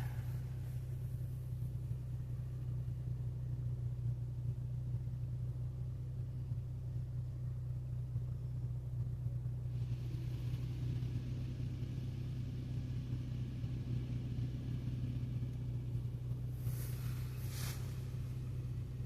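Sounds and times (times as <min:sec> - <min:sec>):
car wash equipment hissing: 0:00.0 - 0:02.0, 0:13.2 - 0:19.0
low hum: 0:00.0 - 0:19.0.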